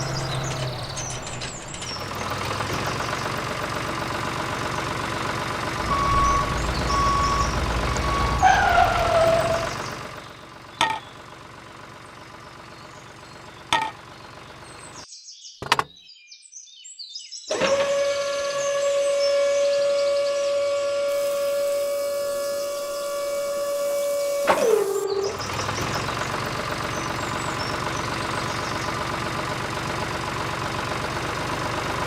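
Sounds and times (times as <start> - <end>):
falling tone: 0.0 - 2.3
vehicle engine running: 0.0 - 15.0, 20.6 - 32.0
short beeps: 5.8 - 8.4.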